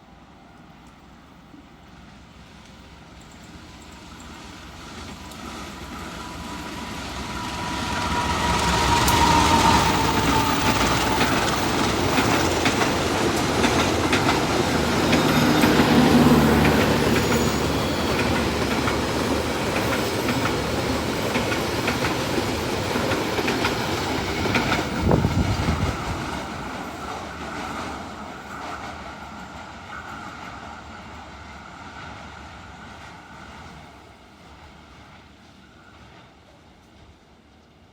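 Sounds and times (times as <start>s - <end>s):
train wheels clattering: 3.1s - 30.8s.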